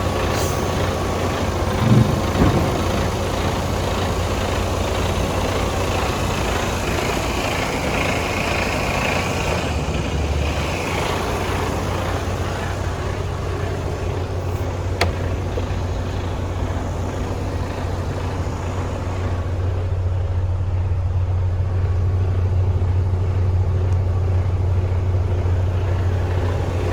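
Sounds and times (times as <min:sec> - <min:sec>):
diesel truck engine humming: 0:00.0 - 0:26.9.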